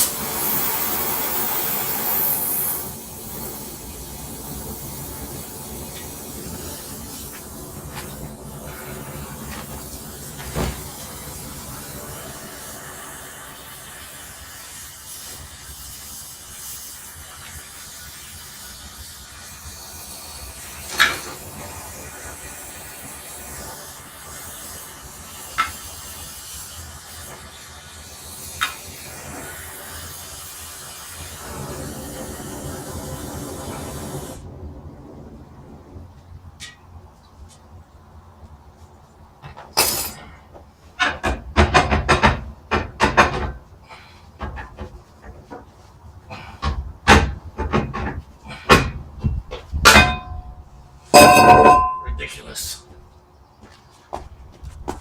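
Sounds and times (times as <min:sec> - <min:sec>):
torch flame hissing: 0:00.0 - 0:37.0.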